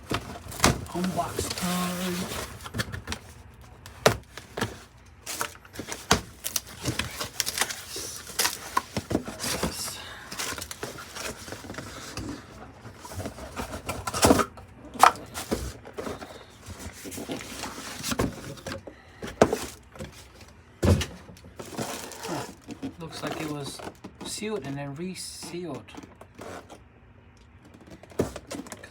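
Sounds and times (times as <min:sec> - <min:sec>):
cardboard box being opened: 0:00.0 - 0:14.5, 0:15.2 - 0:20.4, 0:21.5 - 0:24.4.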